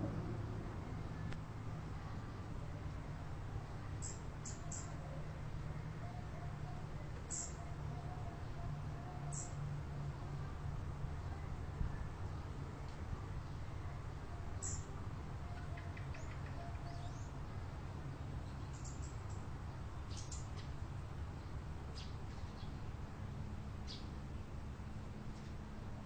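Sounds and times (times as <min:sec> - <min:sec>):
steady low rumble: 0:00.0 - 0:04.4
small birds chirping: 0:04.0 - 0:05.0, 0:07.3 - 0:07.7, 0:09.3 - 0:09.6, 0:14.5 - 0:14.9, 0:15.5 - 0:17.4, 0:18.2 - 0:22.9, 0:23.8 - 0:24.5.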